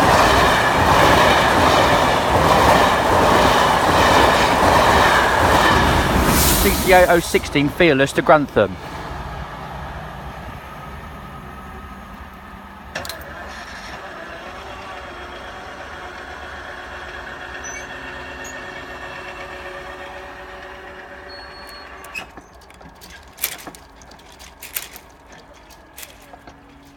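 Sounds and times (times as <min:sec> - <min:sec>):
diesel locomotive passing: 0:00.0 - 0:26.9
sharp clicks: 0:21.6 - 0:26.9.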